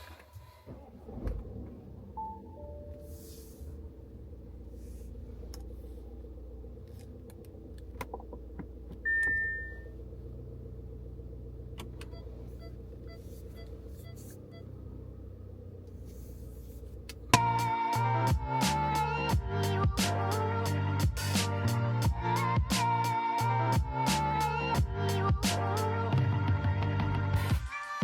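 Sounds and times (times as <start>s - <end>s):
car engine rumbling: 0.0s - 27.6s
short beep: 9.1s - 10.0s
music: 17.4s - 28.0s.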